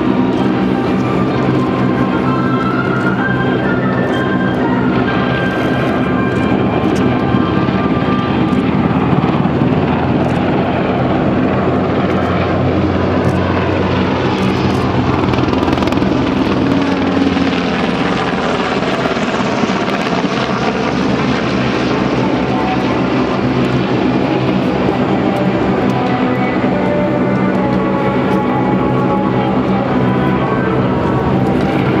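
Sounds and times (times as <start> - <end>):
helicopter in flight: 0.0 - 32.0.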